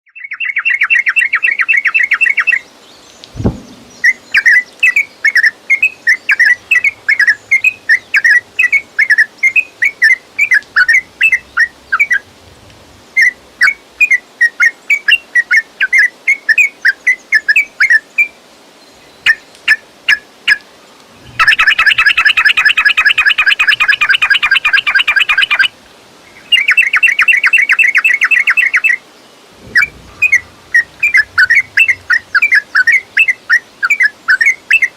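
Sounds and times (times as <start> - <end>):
low thump: 3.3 - 4.3, 29.6 - 32.4
bird singing and chattering: 3.4 - 12.3, 21.2 - 25.7, 29.6 - 34.9.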